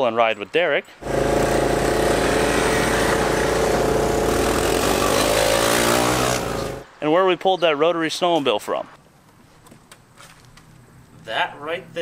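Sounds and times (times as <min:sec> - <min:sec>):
small three-wheeler engines running: 0:01.0 - 0:06.8.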